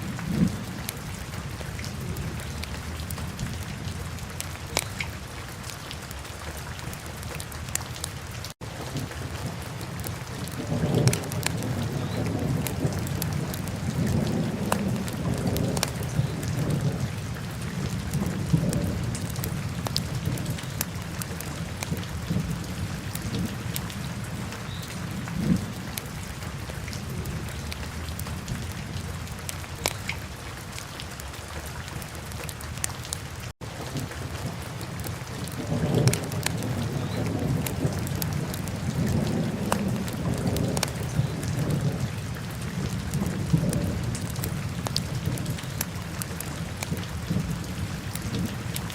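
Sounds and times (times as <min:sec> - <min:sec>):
fire crackles and pops: 0:04.4 - 0:05.1, 0:09.8 - 0:16.8, 0:29.5 - 0:30.1, 0:34.9 - 0:41.8.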